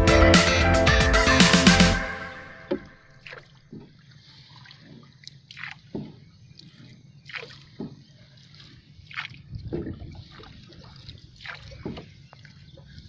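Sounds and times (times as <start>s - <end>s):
waves lapping against boat hull: 2.7s - 13.0s.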